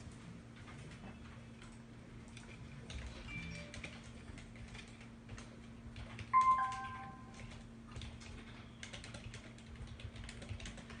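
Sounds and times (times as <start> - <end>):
two-tone electronic beep: 6.4 - 7.3.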